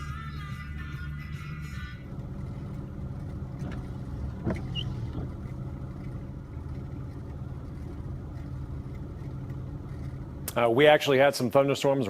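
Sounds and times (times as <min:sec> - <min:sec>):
low engine hum: 0:00.0 - 0:11.6.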